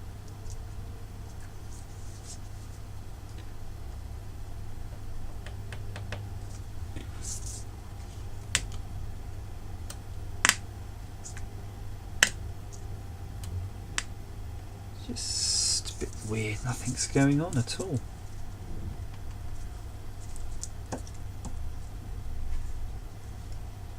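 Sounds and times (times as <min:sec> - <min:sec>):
low hum from small speaker: 0:00.0 - 0:23.9.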